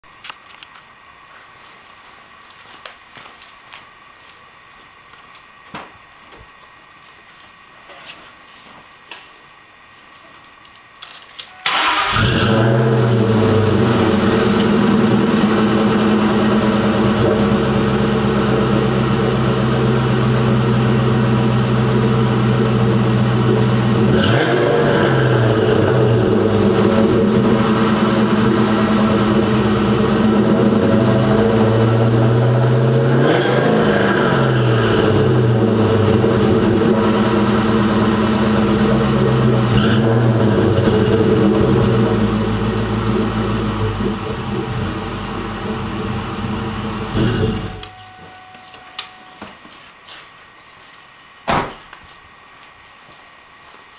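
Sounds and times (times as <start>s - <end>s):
engine starting and running: 11.0s - 49.2s.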